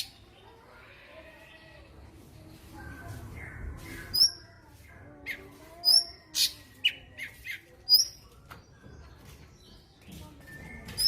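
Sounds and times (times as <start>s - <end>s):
bird chirps: 2.6s - 11.0s.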